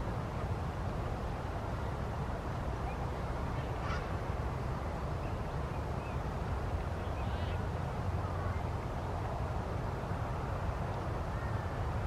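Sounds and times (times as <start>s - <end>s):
faint bird calls: 2.8s - 4.2s, 7.0s - 7.6s.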